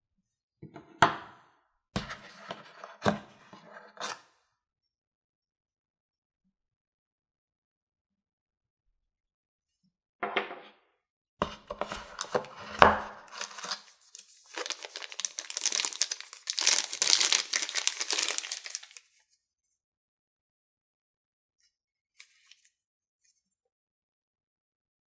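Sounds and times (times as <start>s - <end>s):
wrapping crinkling: 13.2s - 19.1s.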